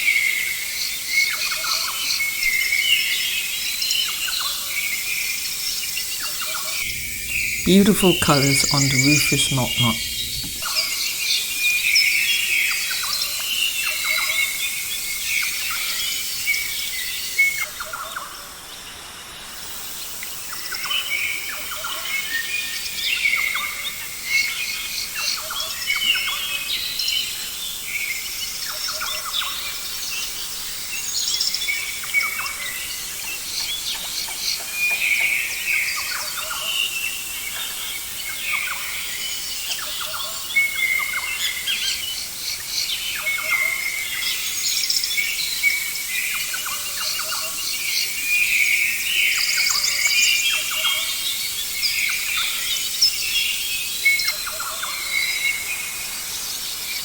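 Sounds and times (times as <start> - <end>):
steady background hiss: 6.9 - 10.6.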